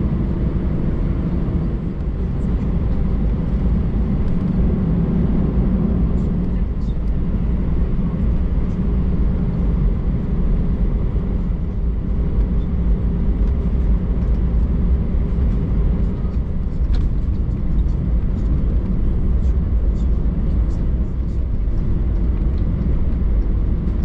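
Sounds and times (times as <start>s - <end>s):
airplane engines rumbling: 0.0s - 24.0s
wheels rolling on taxiway: 0.0s - 24.0s.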